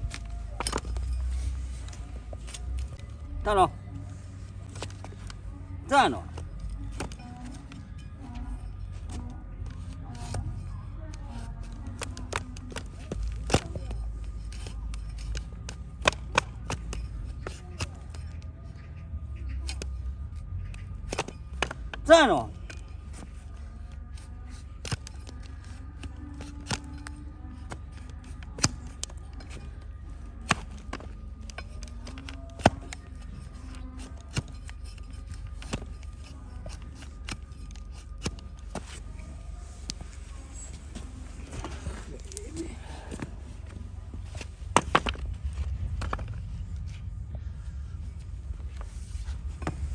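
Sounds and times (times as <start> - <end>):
steady low hum: 0.0 - 49.9
hoof trimming tools cracking: 6.4 - 18.6, 19.5 - 39.2
low rumble: 32.9 - 49.9.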